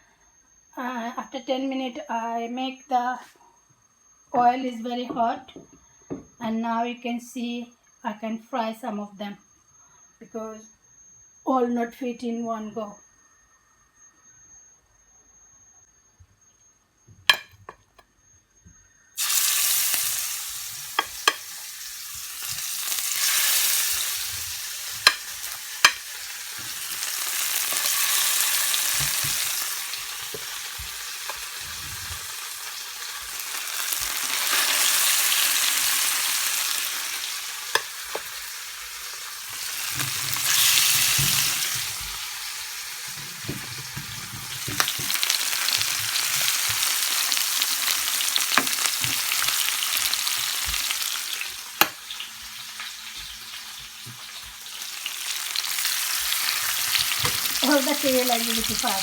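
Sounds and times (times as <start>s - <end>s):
fish sizzling in hot oil: 19.2s - 59.0s.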